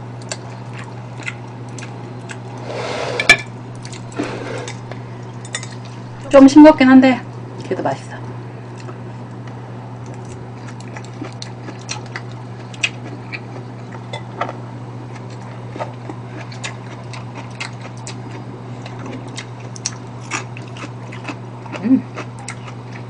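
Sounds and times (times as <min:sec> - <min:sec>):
low electrical hum: 0:00.0 - 0:23.0
chewing and mouth smacks: 0:08.7 - 0:23.0.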